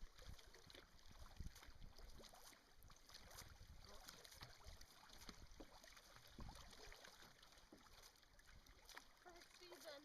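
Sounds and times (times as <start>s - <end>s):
canoe paddles splashing water: 0.0s - 10.0s.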